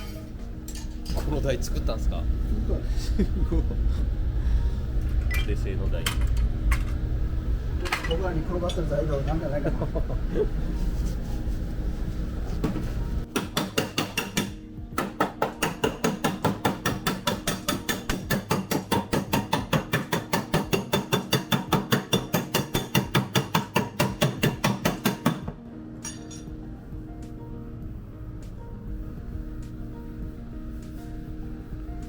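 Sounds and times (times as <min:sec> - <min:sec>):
low hum: 0:00.0 - 0:13.3
hammer on sheet metal: 0:13.3 - 0:25.6.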